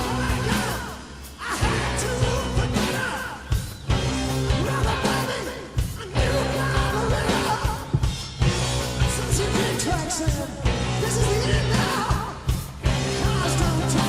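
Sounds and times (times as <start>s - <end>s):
man singing: 0.0s - 3.7s, 4.4s - 8.1s, 9.0s - 14.0s
bass guitar: 0.0s - 14.0s
electric guitar: 0.0s - 14.0s
drum beat: 5.8s - 13.8s.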